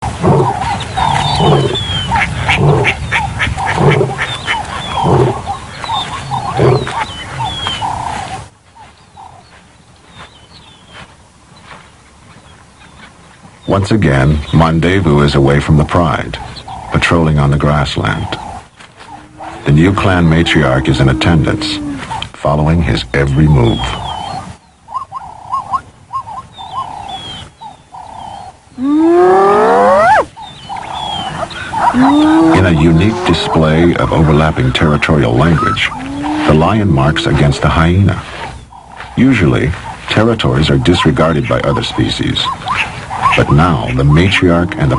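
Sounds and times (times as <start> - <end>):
lions and hyenas fighting: 0.0 - 8.1, 18.3 - 22.3, 28.0 - 41.8
birds chirping: 0.0 - 44.9
hyena whoop rising: 20.8 - 22.1, 28.8 - 30.3, 31.9 - 33.5
hyena yelps: 28.8 - 30.3, 31.8 - 33.2.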